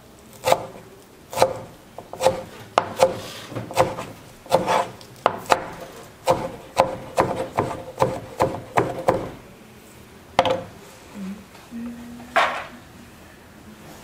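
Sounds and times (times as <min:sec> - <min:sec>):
knife chopping on wooden board: 0:00.4 - 0:09.4, 0:10.4 - 0:10.7.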